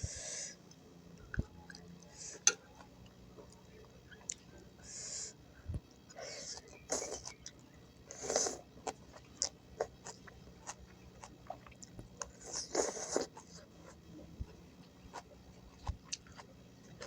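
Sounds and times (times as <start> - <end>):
person chewing and crunching food: 6.2 - 17.0.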